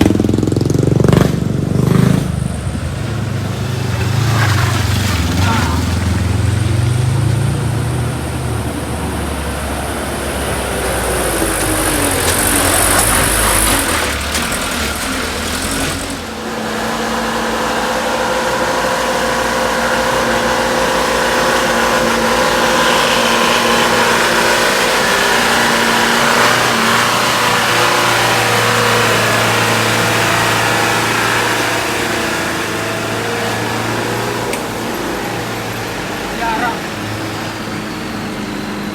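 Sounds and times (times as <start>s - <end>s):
vehicle engines climbing: 0.0s - 38.9s.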